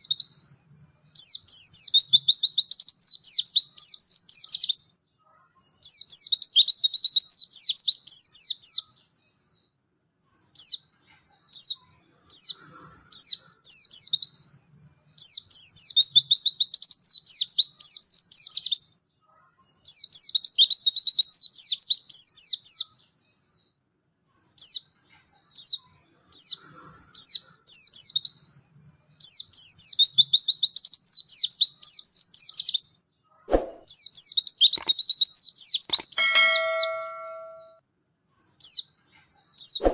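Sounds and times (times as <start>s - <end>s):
bird twittering: 33.5s - 37.7s
sharp click: 35.8s - 37.7s.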